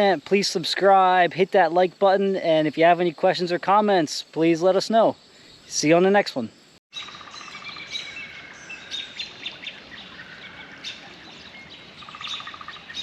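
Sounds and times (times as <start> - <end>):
rapid pulsed bird trill: 6.6 - 13.0
birds chirping and calling: 6.9 - 13.0.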